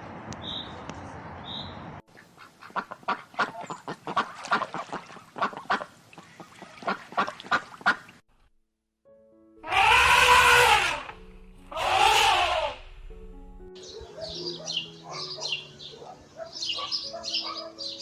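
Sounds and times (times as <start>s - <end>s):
waterfowl calling: 2.2s - 8.2s, 9.6s - 12.9s.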